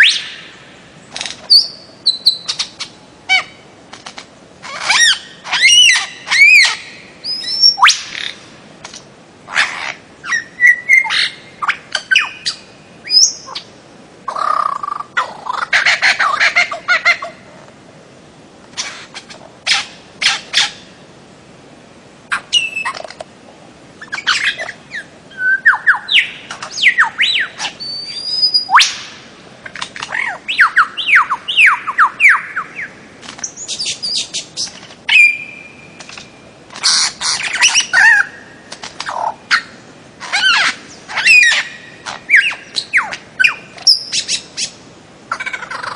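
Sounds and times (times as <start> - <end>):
bird harsh squawks: 4.6 - 8.4, 9.5 - 13.7, 36.8 - 38.4, 39.0 - 45.9
bird down-slurred whistles: 35.1 - 35.8.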